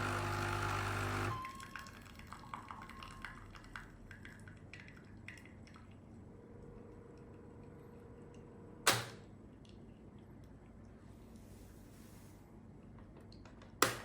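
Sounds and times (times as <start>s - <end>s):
coffee machine faint hum: 0.0s - 3.0s, 6.0s - 13.4s
faint drips: 1.6s - 6.3s.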